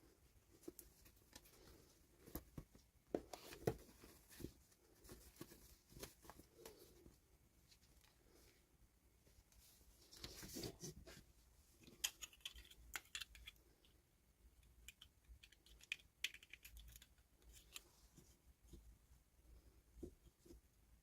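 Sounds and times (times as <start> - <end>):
plastic toy pieces clicking: 12.0 - 13.6, 14.8 - 17.2.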